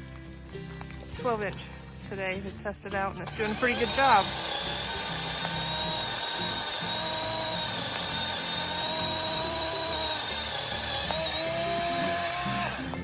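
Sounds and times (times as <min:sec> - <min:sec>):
electric chainsaw cutting wood: 0:03.2 - 0:13.0.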